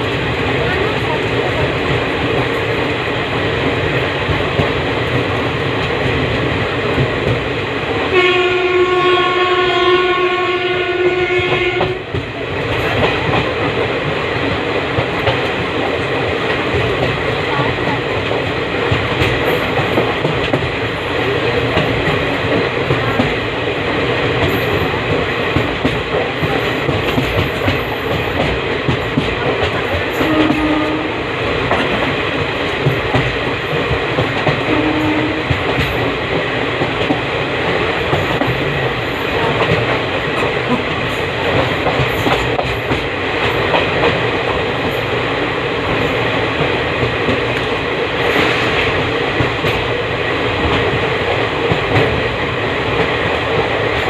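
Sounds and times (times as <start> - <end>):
train wheels rumbling on rail: 0.0 - 54.0
clatter over track: 11.4 - 54.0.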